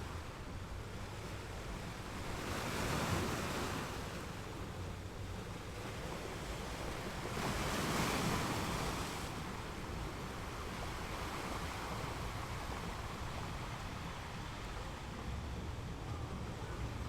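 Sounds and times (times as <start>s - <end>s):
steady surf hiss: 0.0s - 17.0s
small waves breaking on beach: 0.1s - 17.0s.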